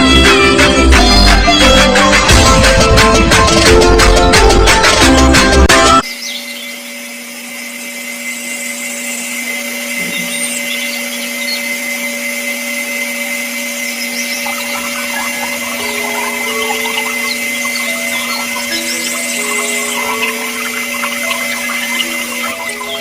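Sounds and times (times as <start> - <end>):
electric power tool humming: 5.8 - 23.0.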